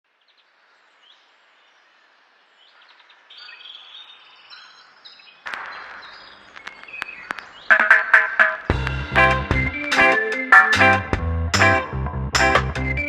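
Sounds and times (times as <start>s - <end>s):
bird chirps and tweets: 0.2s - 7.8s.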